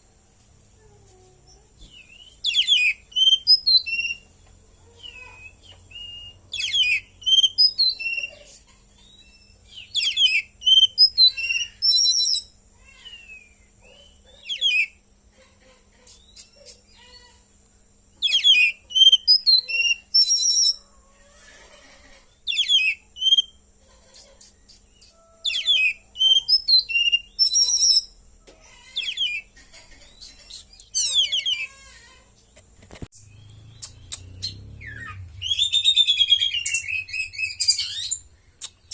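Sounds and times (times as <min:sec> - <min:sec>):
bird singing whistles and chirps: 0:01.8 - 0:04.2, 0:05.0 - 0:08.4, 0:09.0 - 0:15.0, 0:18.2 - 0:20.8, 0:22.5 - 0:23.6, 0:24.9 - 0:28.2, 0:33.2 - 0:38.9.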